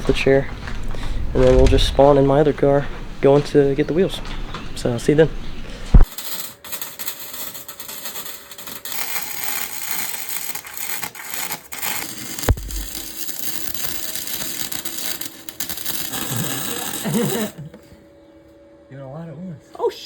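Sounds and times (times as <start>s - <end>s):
sharp knock: 1.4s - 3.0s
welding arc crackling: 6.0s - 17.6s.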